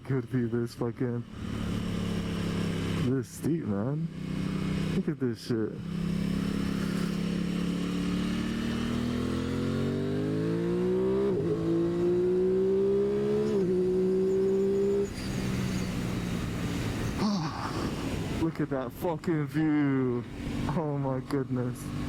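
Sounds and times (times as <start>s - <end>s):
motorcycle engine revving: 1.2s - 3.2s, 4.0s - 5.0s, 5.8s - 18.5s, 20.2s - 22.0s.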